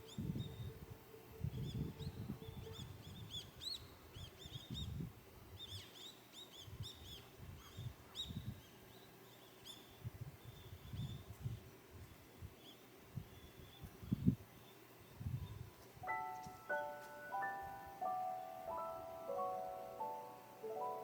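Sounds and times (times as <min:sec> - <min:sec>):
small birds chirping: 0:05.6 - 0:21.0.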